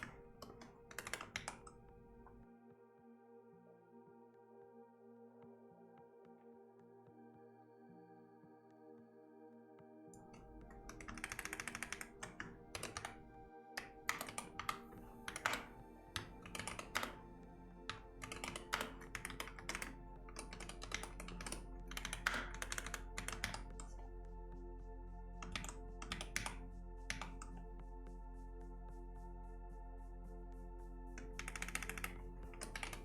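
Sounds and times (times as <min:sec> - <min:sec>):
computer keyboard typing: 0:00.0 - 0:02.2, 0:10.2 - 0:13.2, 0:13.8 - 0:17.2, 0:17.9 - 0:23.9, 0:25.4 - 0:27.6, 0:31.2 - 0:33.0
soft ambient music: 0:00.0 - 0:33.0.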